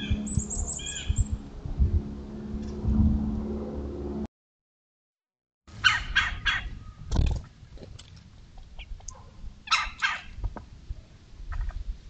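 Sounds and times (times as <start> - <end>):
harsh raspy bird calls: 0.0 - 1.3, 5.8 - 6.7, 9.7 - 10.3.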